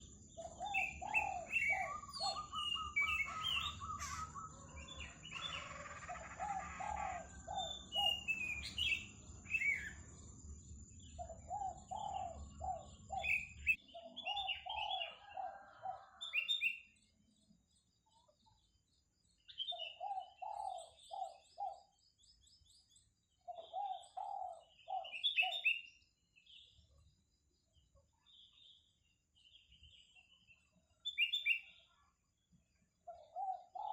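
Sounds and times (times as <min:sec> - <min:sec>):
dove cooing: 0:00.0 - 0:10.0, 0:11.1 - 0:16.4, 0:20.0 - 0:21.9, 0:23.5 - 0:25.7, 0:33.1 - 0:33.9
small birds chirping: 0:00.0 - 0:33.9.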